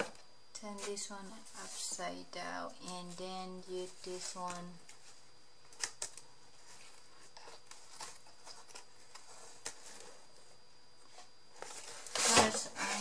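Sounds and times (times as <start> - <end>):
paper rustling: 2.8 - 10.5, 11.1 - 13.0.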